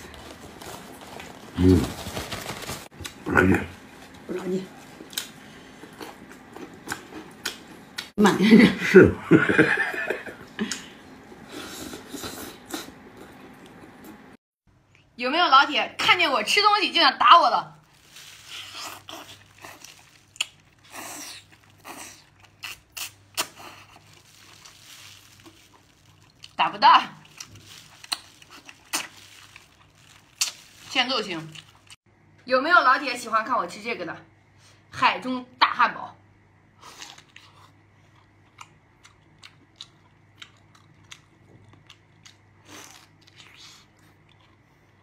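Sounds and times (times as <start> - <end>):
chewing: 18.4 - 26.6, 27.2 - 30.9, 36.8 - 45.0.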